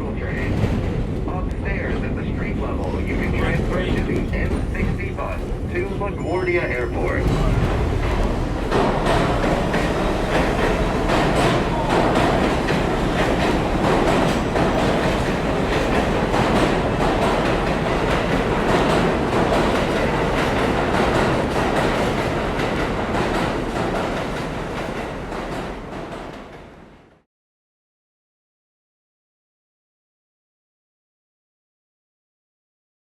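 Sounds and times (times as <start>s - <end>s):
subway train rumble: 0.0s - 27.3s
wheels clicking over rail joints: 7.2s - 26.2s.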